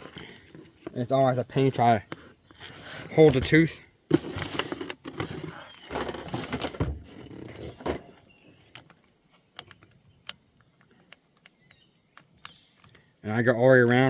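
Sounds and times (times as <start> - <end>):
paper scraping and rustling: 2.6 - 8.2.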